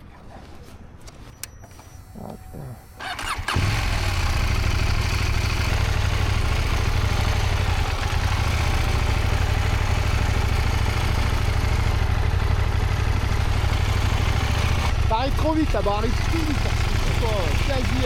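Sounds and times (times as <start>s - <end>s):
motorcycle engine idling: 2.9s - 18.0s.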